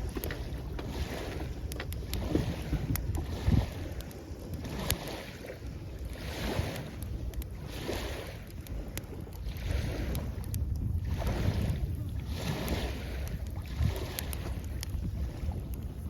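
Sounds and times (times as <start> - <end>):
campfire crackling: 0.0 - 16.0
low wind rumble: 0.0 - 16.0
small waves washing ashore: 0.0 - 16.0.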